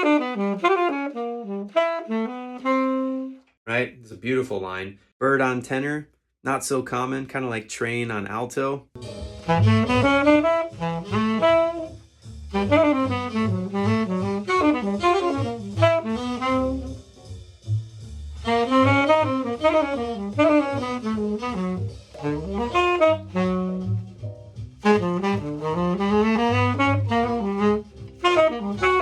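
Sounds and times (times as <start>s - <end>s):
tenor saxophone bebop solo: 0.0s - 3.5s, 9.0s - 17.8s, 18.4s - 29.0s
bass accompaniment: 0.0s - 29.0s.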